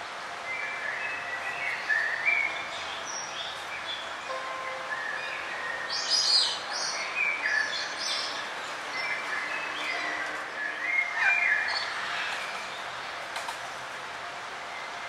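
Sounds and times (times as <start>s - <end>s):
steady background hiss: 0.0s - 15.0s
songbirds chirping and trilling: 0.1s - 15.0s.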